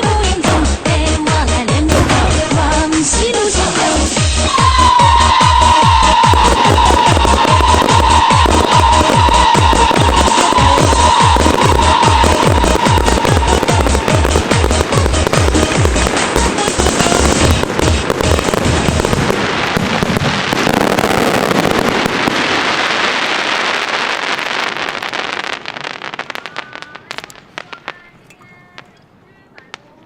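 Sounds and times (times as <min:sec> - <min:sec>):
fireworks bursting and crackling: 0:00.0 - 0:30.0
music with heavy bass beat: 0:00.2 - 0:19.1.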